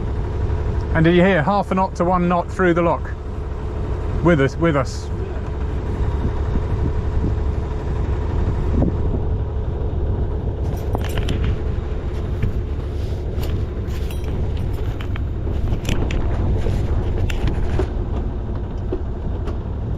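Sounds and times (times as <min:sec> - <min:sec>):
boat engine rumbling: 0:00.0 - 0:19.9
light clicks and rattles: 0:10.6 - 0:18.0.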